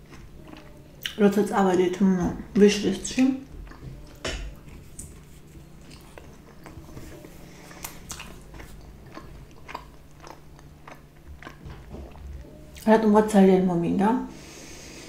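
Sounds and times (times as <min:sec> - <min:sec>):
wet chewing mouth clicks: 0:03.5 - 0:06.9, 0:07.7 - 0:12.2.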